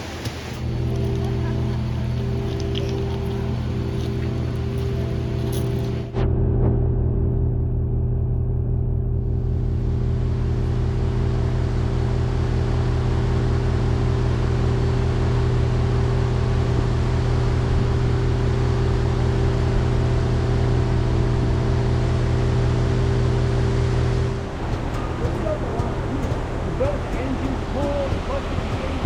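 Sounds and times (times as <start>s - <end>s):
wheel and track noise: 0.0s - 6.2s, 23.8s - 29.0s
diesel train engine drone: 0.0s - 29.0s.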